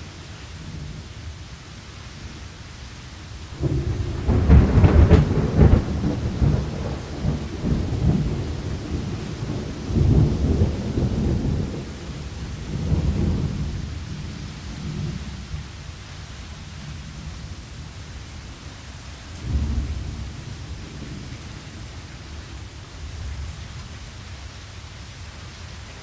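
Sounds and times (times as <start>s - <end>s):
steady rain: 0.0s - 26.0s
thunderclap rumbling: 3.6s - 15.6s, 19.4s - 23.5s.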